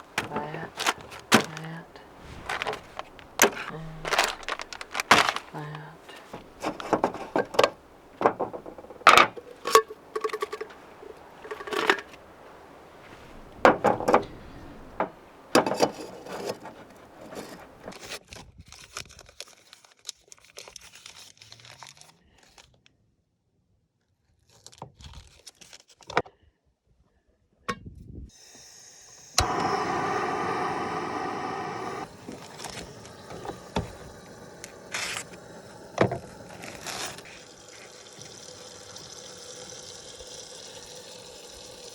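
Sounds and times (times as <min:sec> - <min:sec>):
loud steady hiss: 0:00.0 - 0:18.1, 0:28.4 - 0:40.2
food packages crinkling: 0:00.0 - 0:22.7, 0:36.2 - 0:38.0.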